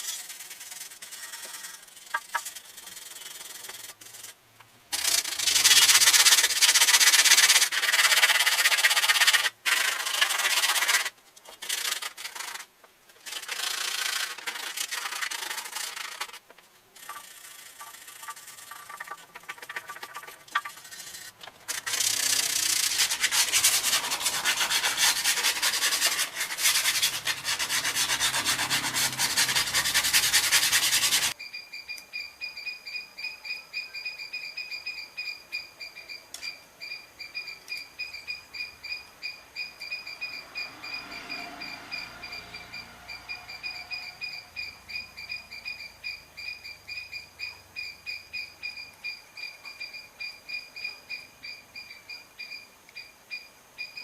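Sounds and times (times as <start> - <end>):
sanding rusty metal by hand: 0.0 - 4.4, 5.0 - 12.6, 13.2 - 16.4, 17.0 - 31.4.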